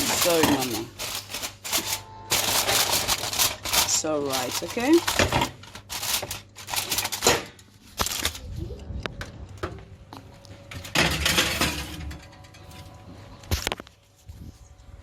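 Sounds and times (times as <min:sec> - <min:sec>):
kitchenware rattle: 0:00.0 - 0:07.6, 0:10.8 - 0:12.8.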